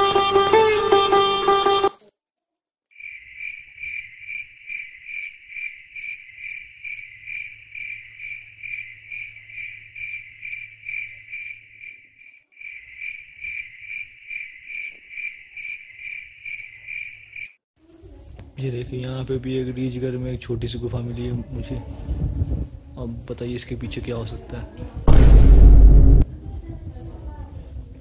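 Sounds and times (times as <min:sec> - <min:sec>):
cricket chirping: 0:02.9 - 0:17.6.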